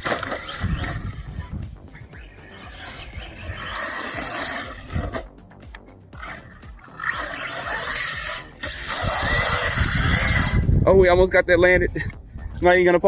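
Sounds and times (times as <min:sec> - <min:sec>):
rc truck motor whine: 0:00.0 - 0:05.3, 0:06.2 - 0:10.7
tyres on dirt and gravel: 0:00.0 - 0:13.0.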